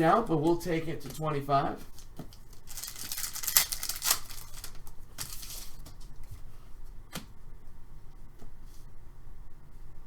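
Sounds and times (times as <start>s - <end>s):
trading cards rustling: 1.9s - 5.9s.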